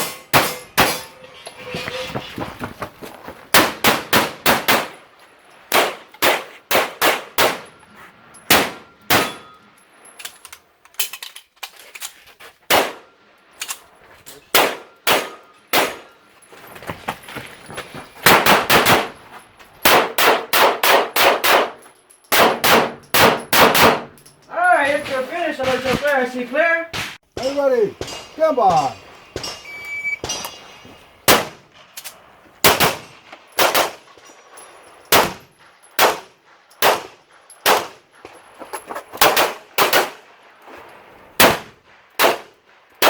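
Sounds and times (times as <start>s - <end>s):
pistol shots fired rapidly: 22.4s - 24.1s, 39.2s - 40.2s, 41.4s - 42.6s.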